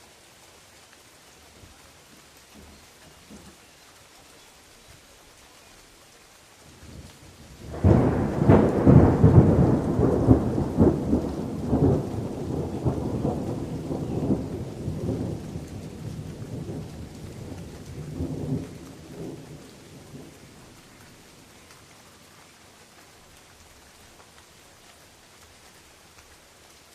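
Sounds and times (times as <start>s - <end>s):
rain falling on leaves: 0.0s - 26.9s
thunder clap and rumble: 6.9s - 21.9s.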